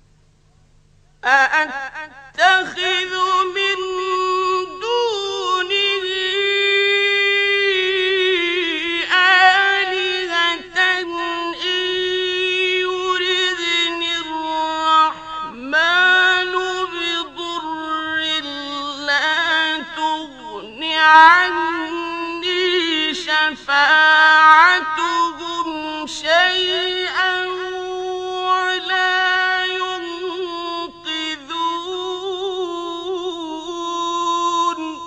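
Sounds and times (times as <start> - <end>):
man chanting melodically: 1.2 - 35.0.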